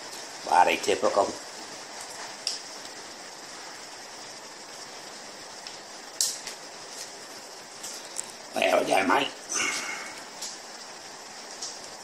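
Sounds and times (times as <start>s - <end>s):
rain hissing: 0.0s - 12.0s.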